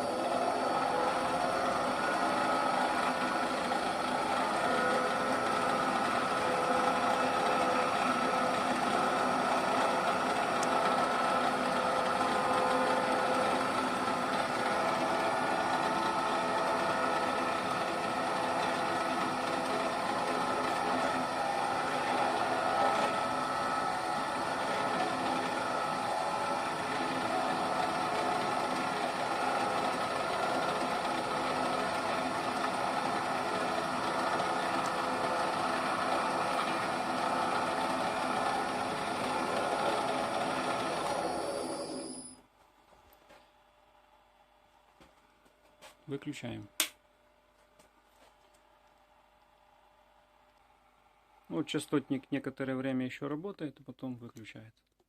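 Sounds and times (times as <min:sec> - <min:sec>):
drill press whirring: 0:00.0 - 0:45.9.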